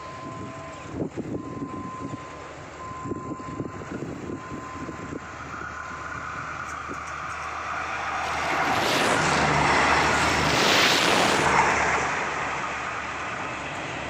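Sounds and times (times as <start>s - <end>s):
train rumble and rail noise: 6.0s - 14.0s.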